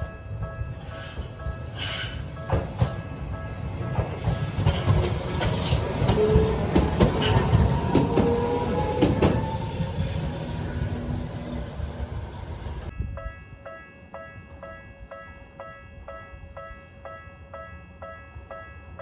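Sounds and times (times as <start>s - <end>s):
train wheels clacking over rail joints: 0.7s - 9.6s.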